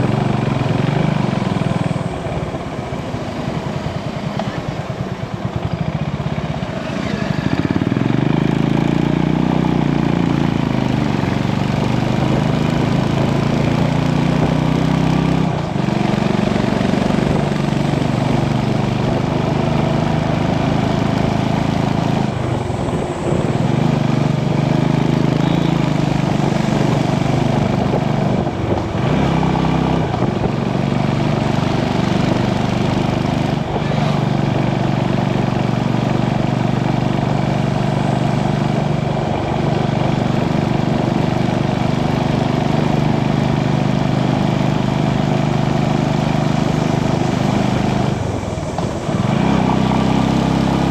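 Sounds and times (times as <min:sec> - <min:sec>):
motorcycle engine running: 0:00.0 - 0:50.9
wind and road noise: 0:00.0 - 0:50.9.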